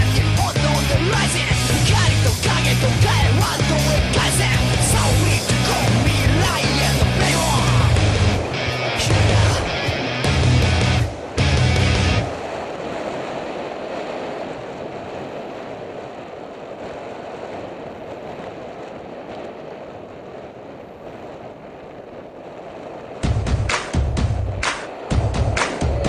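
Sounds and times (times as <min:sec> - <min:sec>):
loud music: 0:00.0 - 0:12.3, 0:23.3 - 0:26.0
wind noise on microphone: 0:00.0 - 0:26.0.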